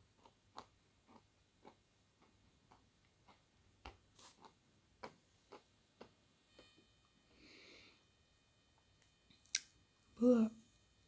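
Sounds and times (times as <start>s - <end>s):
soft chewing mouth clicks: 0.2s - 3.4s, 4.2s - 6.1s
breathy hiss: 6.5s - 8.4s.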